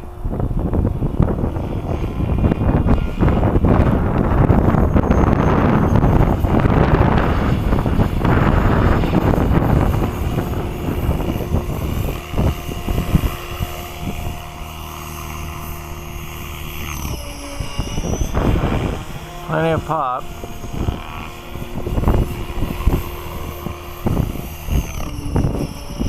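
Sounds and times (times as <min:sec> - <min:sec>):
rc helicopter rotor hum and whine: 0:00.0 - 0:26.0
wind buffeting microphone: 0:00.0 - 0:26.0.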